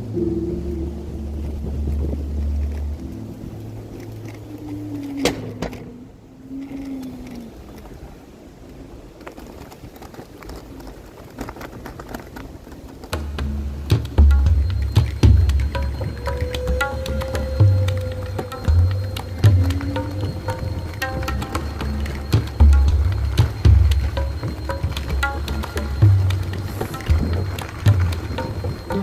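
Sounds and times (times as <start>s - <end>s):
scooter rumbling on dirt trail: 0.0s - 16.8s
music with deep bass: 13.2s - 29.0s.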